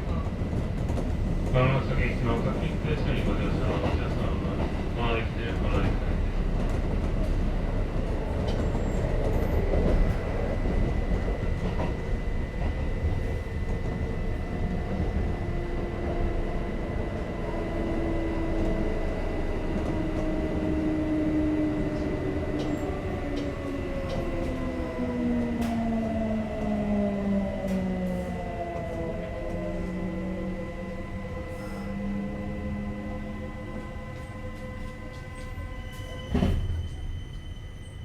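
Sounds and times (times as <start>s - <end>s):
train wheels rumbling on rail: 0.0s - 38.0s
train motor whine: 8.3s - 37.9s.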